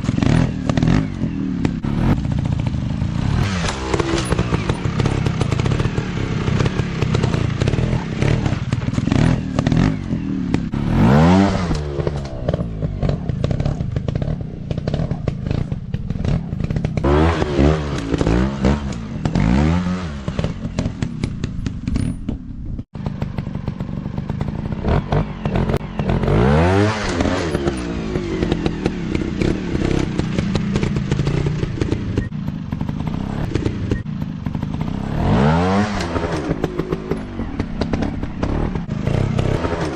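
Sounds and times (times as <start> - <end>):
dirt bike engines revving: 0.0 - 22.0, 23.0 - 39.9
bikes clattering over rough ground: 11.6 - 26.4.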